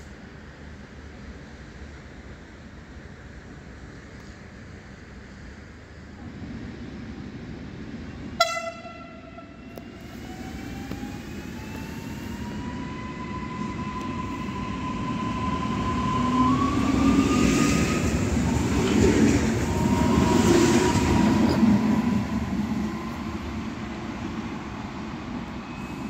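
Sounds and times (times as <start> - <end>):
rumble of train wheels: 0.0 - 26.0
train horn toot: 8.4 - 9.8.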